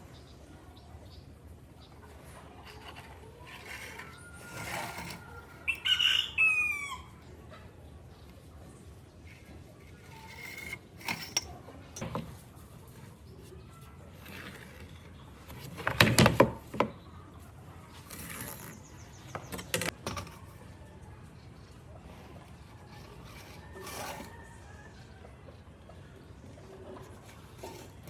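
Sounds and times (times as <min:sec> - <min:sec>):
clicks and knocks of hand tools: 0:09.3 - 0:12.5, 0:14.2 - 0:17.0, 0:18.0 - 0:20.6.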